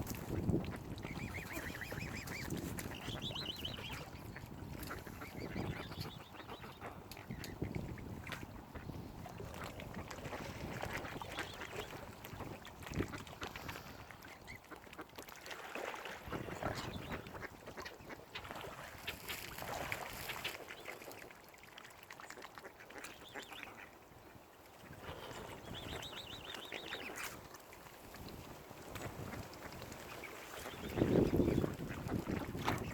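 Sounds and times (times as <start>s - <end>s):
waterfowl calling: 1.1s - 9.0s.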